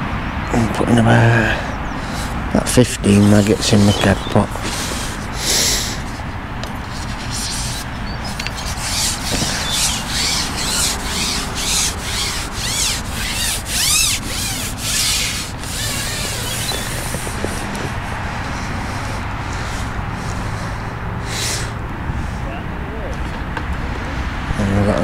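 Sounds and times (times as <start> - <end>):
fishing pole rubbing swishes: 3.1 - 20.6.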